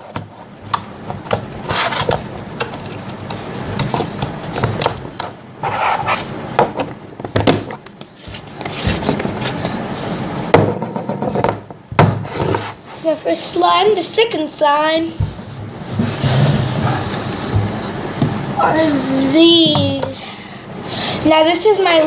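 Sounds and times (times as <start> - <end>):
plastic rubbing and scraping: 7.6 - 9.8.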